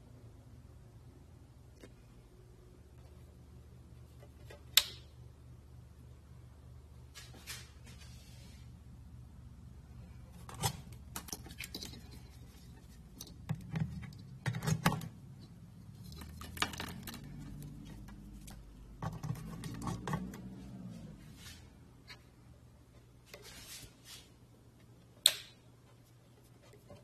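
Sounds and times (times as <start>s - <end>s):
steady low hum: 0.0s - 27.0s
hard objects clattering: 16.0s - 18.4s.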